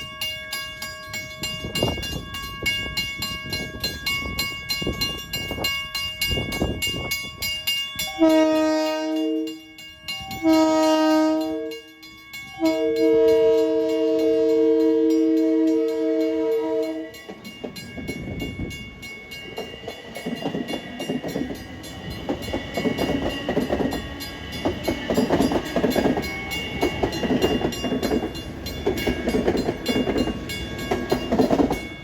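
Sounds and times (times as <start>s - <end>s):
train rumbling: 0.0s - 32.0s
train chord horn blasts: 8.0s - 11.8s, 12.5s - 17.2s.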